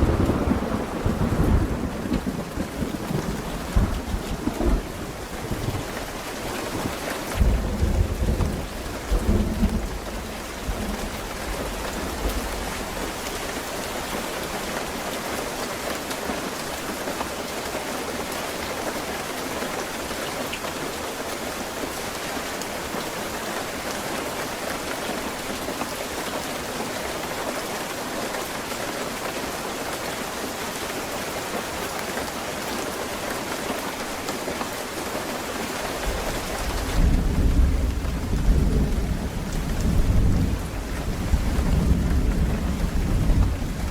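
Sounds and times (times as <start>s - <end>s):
thunder rumbling: 0.0s - 13.4s, 36.1s - 43.9s
steady rain falling: 0.0s - 43.9s.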